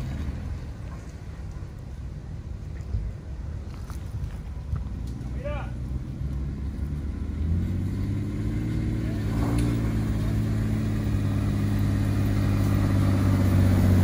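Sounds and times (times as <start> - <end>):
car engine running: 5.1 - 14.0.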